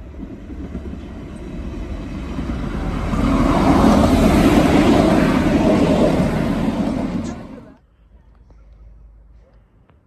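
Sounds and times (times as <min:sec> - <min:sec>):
train passing at speed: 0:00.0 - 0:07.8.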